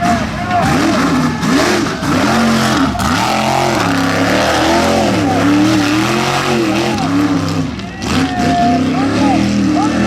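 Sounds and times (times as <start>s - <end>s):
truck engine revving: 0.0s - 10.0s.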